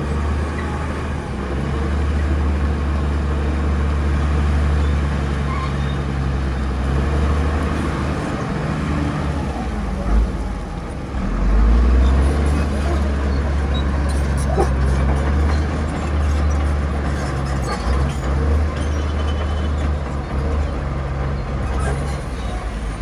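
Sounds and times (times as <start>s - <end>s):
bulldozer diesel engine rumbling: 0.0s - 23.0s.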